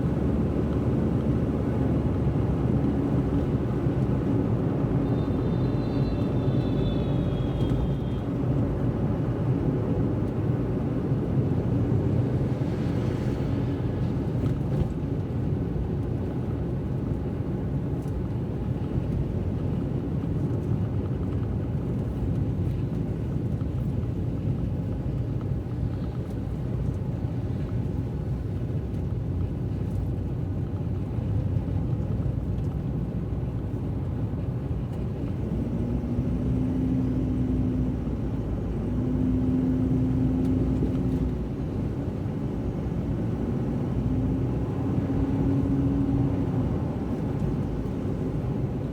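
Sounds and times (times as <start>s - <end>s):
car engine and road rumble: 0.0s - 48.9s.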